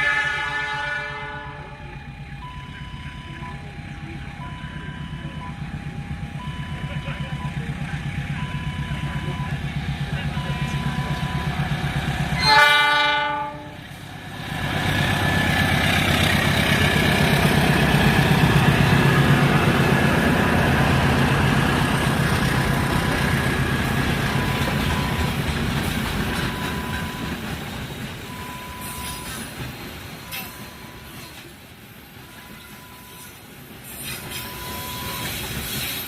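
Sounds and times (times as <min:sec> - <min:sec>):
train horn blast: 0:00.0 - 0:01.8, 0:12.4 - 0:13.9
train rumbling past: 0:00.0 - 0:36.0
wheels clattering over rail joints: 0:22.0 - 0:32.1.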